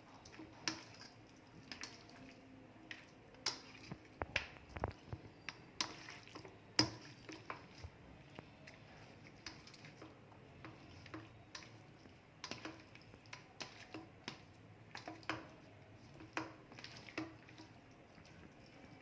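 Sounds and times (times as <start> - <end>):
hands squelching in marinade: 5.3 - 7.9, 16.0 - 19.0.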